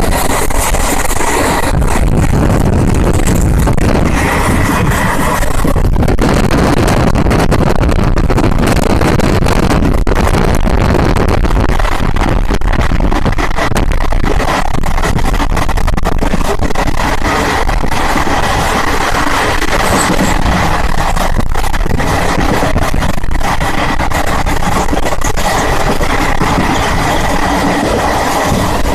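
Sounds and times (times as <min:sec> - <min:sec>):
train wheel and wind rush: 0:00.0 - 0:28.9
clicks and rattles: 0:18.0 - 0:28.9.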